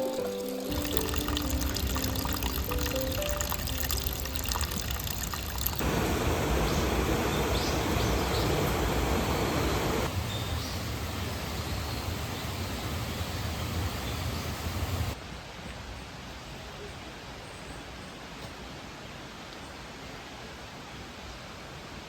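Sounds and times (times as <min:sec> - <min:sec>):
stream and waterfall rushing: 0:00.0 - 0:16.4.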